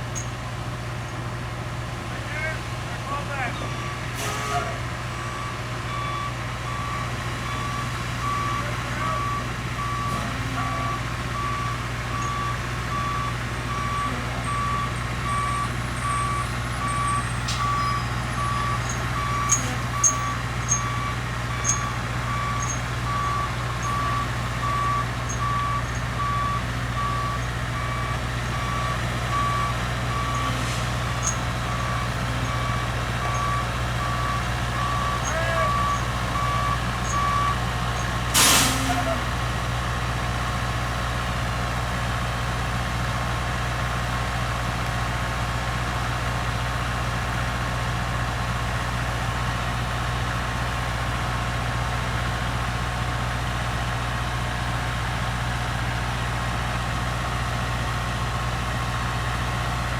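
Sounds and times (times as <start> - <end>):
engine humming: 0.0 - 59.9
backup alarm beeping: 3.5 - 39.2.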